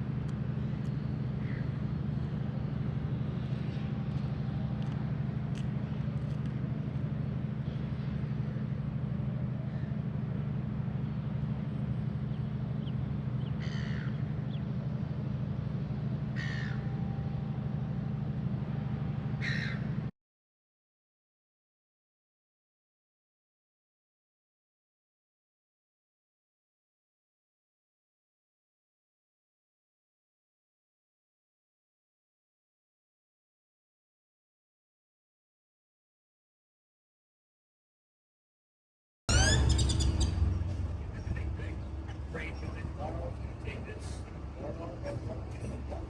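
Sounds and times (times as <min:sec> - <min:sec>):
steady low hum: 0:00.0 - 0:20.1, 0:39.3 - 0:46.0
short bird calls: 0:39.3 - 0:42.9.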